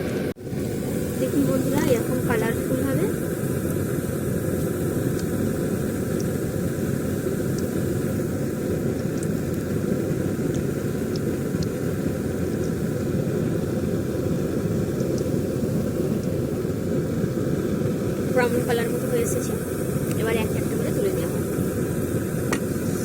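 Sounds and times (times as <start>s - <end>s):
food deep-frying in oil: 0.0s - 23.0s
oil pops and crackles: 8.8s - 16.4s, 22.4s - 22.8s.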